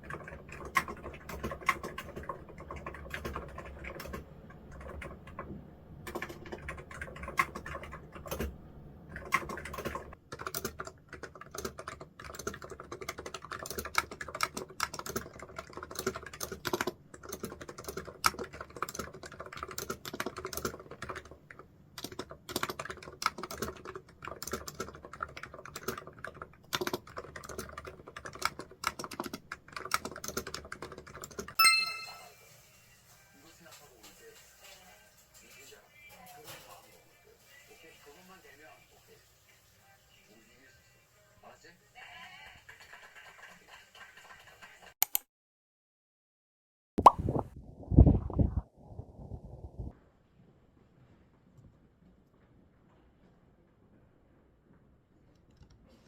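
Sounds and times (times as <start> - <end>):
computer keyboard typing: 0.0 - 32.2.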